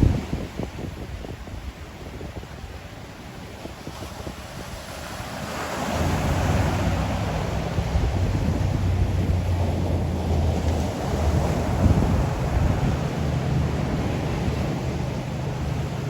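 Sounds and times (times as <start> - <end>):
wind buffeting microphone: 0.0 - 16.0
ocean wave breaking: 3.5 - 16.0.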